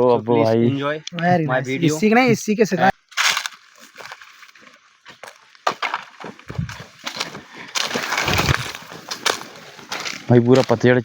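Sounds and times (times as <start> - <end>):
footsteps crunching dry leaves: 3.1 - 11.0.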